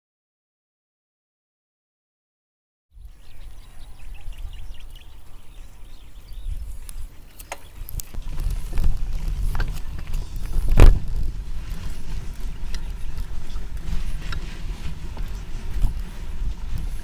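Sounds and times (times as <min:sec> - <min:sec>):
faint bird chirps: 0:03.0 - 0:08.0
bicycle road rumble: 0:03.0 - 0:17.0
wind on microphone: 0:03.0 - 0:17.0.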